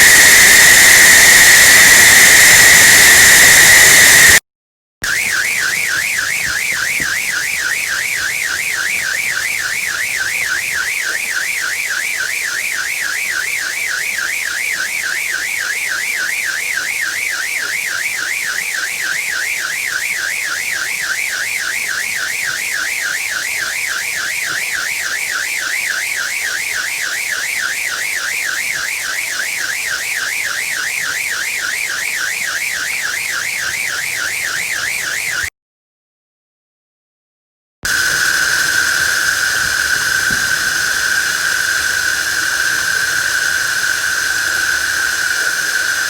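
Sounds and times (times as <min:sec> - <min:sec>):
fast warbling electronic tone: 0:37.9 - 0:46.0
steady hiss: 0:37.9 - 0:46.0.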